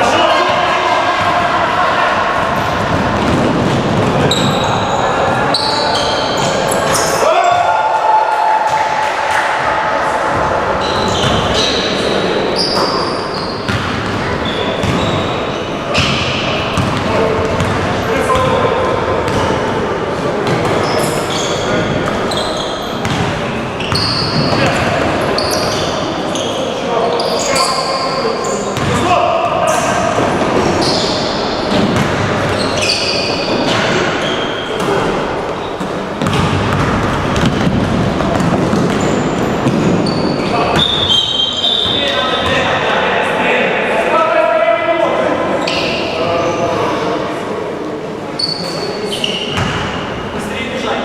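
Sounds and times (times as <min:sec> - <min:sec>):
echoing voices in hall: 0:00.0 - 0:51.0
sneakers squeaking: 0:02.4 - 0:07.7, 0:10.3 - 0:19.7, 0:20.4 - 0:42.9, 0:45.5 - 0:47.0, 0:48.3 - 0:50.4
basketball bouncing: 0:13.7 - 0:14.2, 0:16.0 - 0:18.6, 0:23.0 - 0:23.3, 0:28.8 - 0:29.0, 0:31.7 - 0:32.8, 0:36.2 - 0:40.1, 0:49.6 - 0:49.8.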